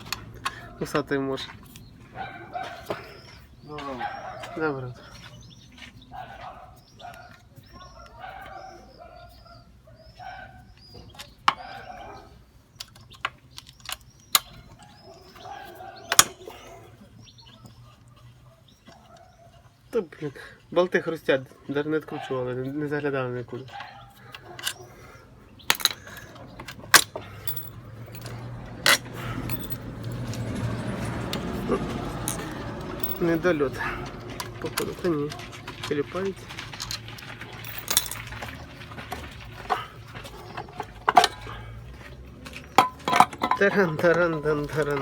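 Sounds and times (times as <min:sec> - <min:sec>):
small birds chirping: 0:00.0 - 0:42.8
metal tools clinking: 0:23.7 - 0:24.8, 0:25.6 - 0:45.0.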